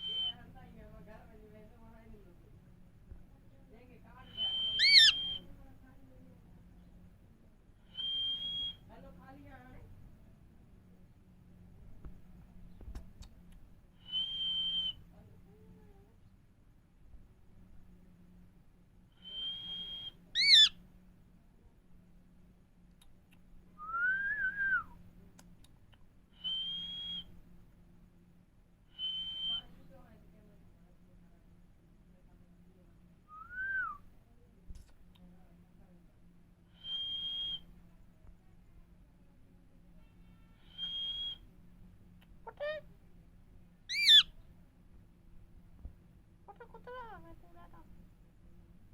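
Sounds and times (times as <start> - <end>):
parrot whistling: 4.4 - 5.4, 19.4 - 20.7, 40.6 - 41.4, 43.9 - 44.3
parrot calling: 4.7 - 5.4, 20.0 - 20.8, 43.9 - 44.3
faint clicks: 12.8 - 13.7, 22.9 - 23.5, 25.3 - 26.1, 34.7 - 35.3.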